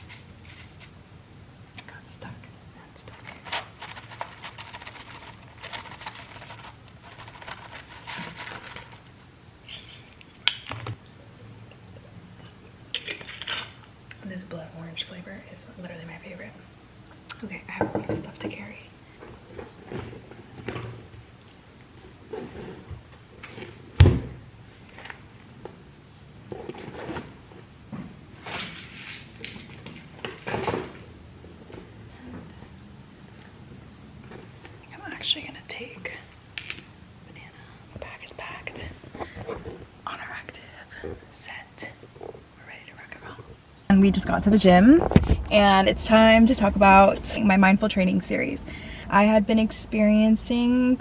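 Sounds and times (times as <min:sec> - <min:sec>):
items clunking and rustling: 0:00.0 - 0:01.0, 0:03.1 - 0:09.2, 0:19.2 - 0:21.3, 0:26.4 - 0:32.7, 0:39.0 - 0:40.0
powder scraping and rustling: 0:00.0 - 0:01.0, 0:03.1 - 0:09.2.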